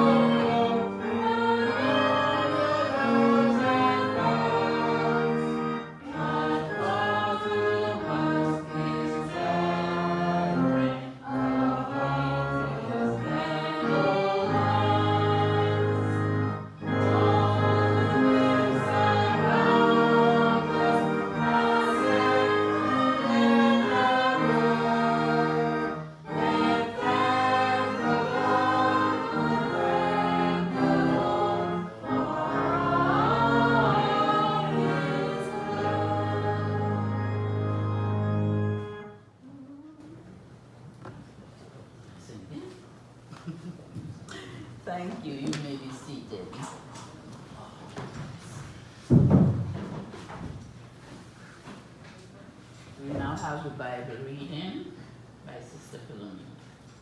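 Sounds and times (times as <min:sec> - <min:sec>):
congregation singing a hymn: 0:00.0 - 0:39.2.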